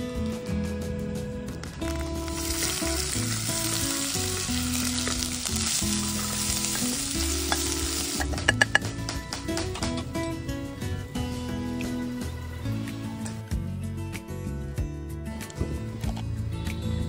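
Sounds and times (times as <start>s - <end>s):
paste sizzling in hot oil: 2.0s - 8.8s.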